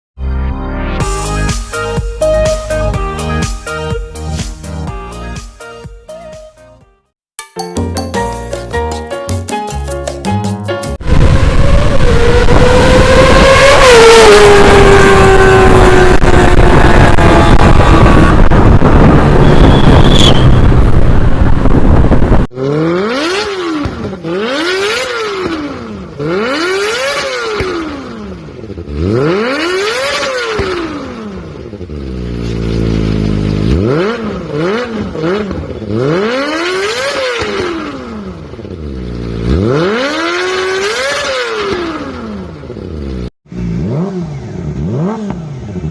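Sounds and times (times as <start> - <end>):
motorcycle engine revving: 11.0 - 45.9.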